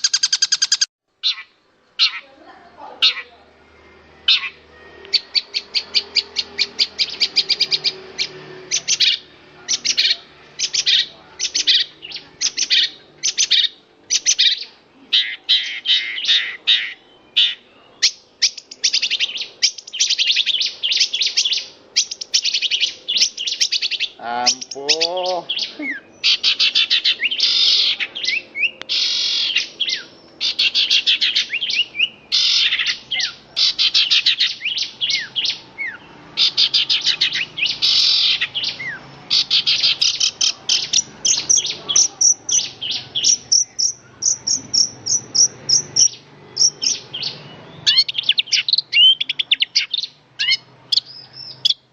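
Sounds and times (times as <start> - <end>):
lower wavering bird call: 3.0 - 51.8
shrike singing high chattering phrases: 24.1 - 26.1.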